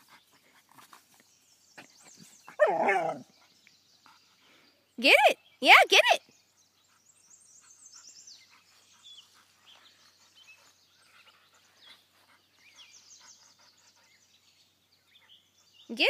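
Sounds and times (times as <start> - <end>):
faint birds chirping: 0.0 - 16.0.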